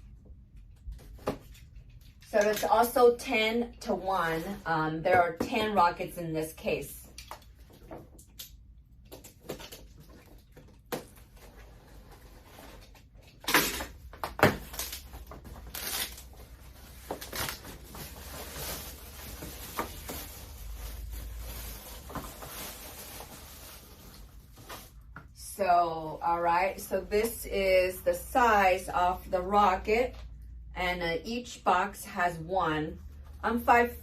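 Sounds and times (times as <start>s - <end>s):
cardboard packaging rustling: 14.5s - 25.1s.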